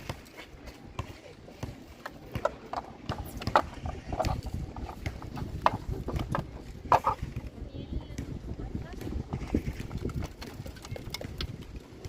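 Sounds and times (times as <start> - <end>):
plastic toys clicking and clacking: 9.5 - 11.8.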